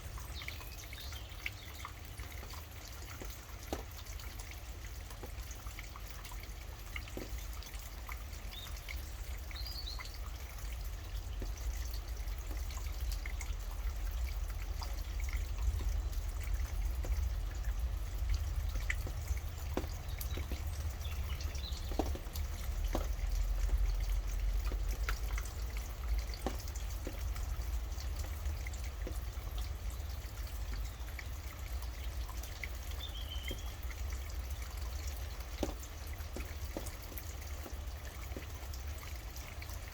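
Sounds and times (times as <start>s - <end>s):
rain dripping and pattering: 0.0s - 39.9s
bird chirping: 33.0s - 33.8s.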